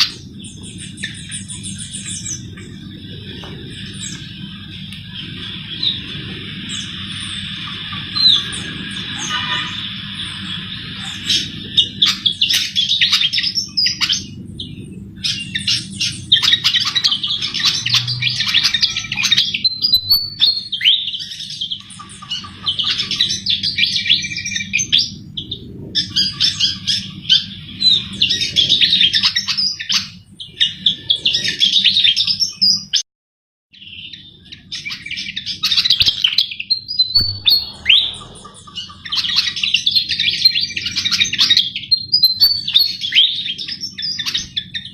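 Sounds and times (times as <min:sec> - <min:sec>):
steady low hum: 0:00.0 - 0:29.1, 0:36.7 - 0:41.9
bird twittering song: 0:00.0 - 0:33.0, 0:33.8 - 0:44.9.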